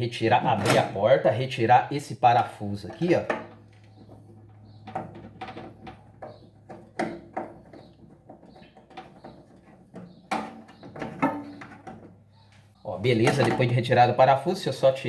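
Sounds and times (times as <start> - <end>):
microwave oven being handled: 0.5 - 1.0.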